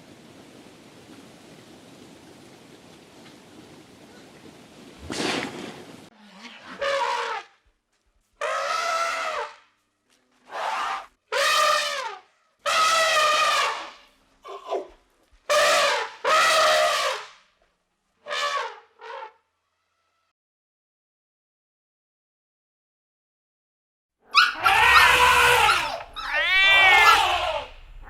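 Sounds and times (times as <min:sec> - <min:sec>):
animal calling: 0:24.3 - 0:28.0.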